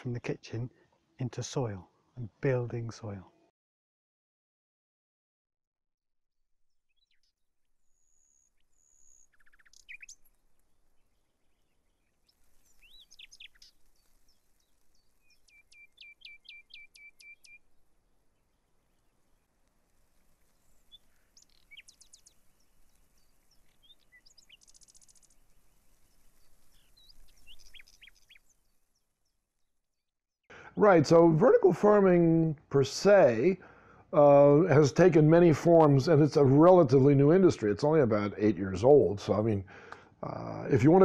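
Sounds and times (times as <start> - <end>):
birds chirping and whistling: 7.9 - 10.3, 11.5 - 17.6, 20.6 - 25.3, 26.1 - 28.5.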